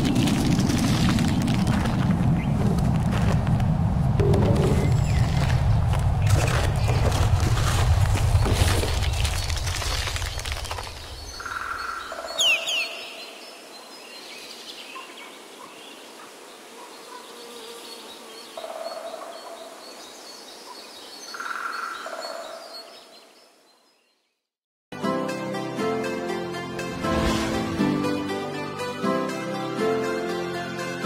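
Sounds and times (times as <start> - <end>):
birds calling: 8.2 - 16.0.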